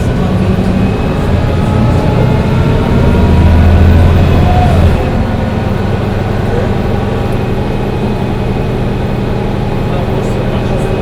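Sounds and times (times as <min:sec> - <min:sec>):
bus engine droning: 0:00.0 - 0:11.0
road noise: 0:00.0 - 0:11.0.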